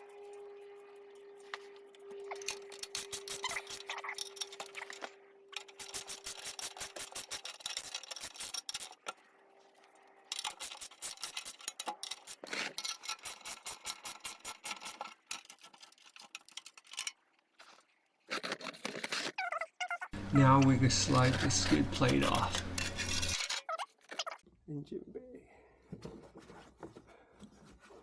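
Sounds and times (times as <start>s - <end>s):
ratchet wrench clicking: 5.6s - 9.0s.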